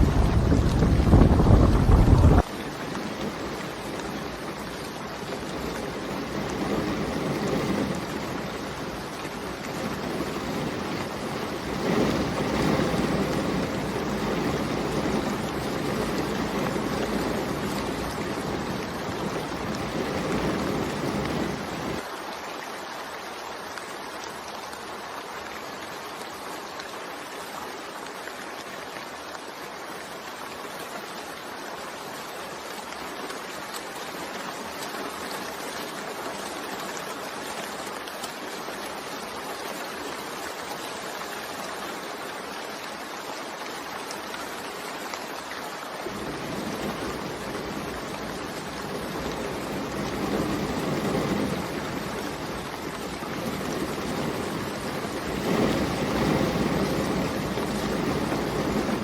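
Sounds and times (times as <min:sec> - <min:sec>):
heavy deep rumble: 0:00.0 - 0:02.5
rain hiss: 0:00.0 - 0:59.0.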